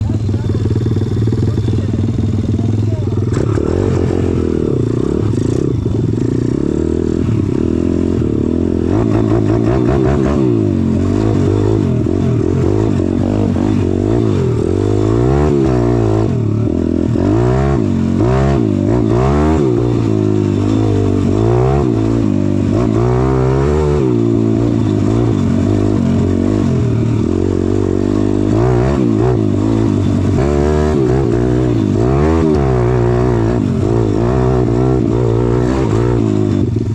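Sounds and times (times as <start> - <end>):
motorbike engine revving: 0.0 - 36.9.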